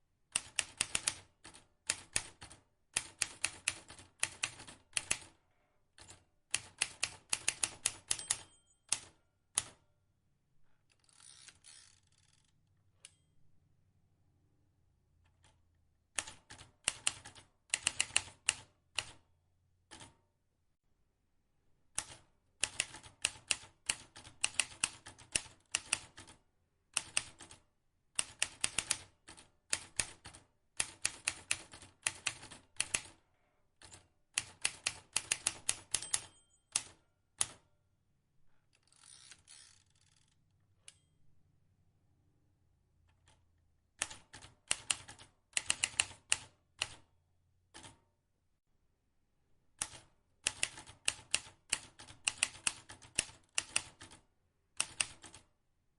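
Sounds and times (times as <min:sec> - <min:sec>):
typewriter keys clacking: 0:06.0 - 0:09.1, 0:33.9 - 0:37.6.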